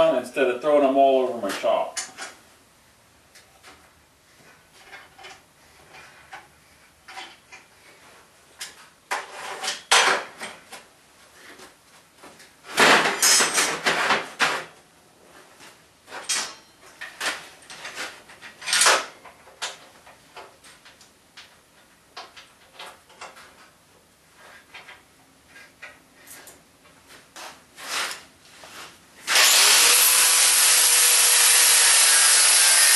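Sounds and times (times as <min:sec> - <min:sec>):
metal tools clattering: 0:12.8 - 0:14.2.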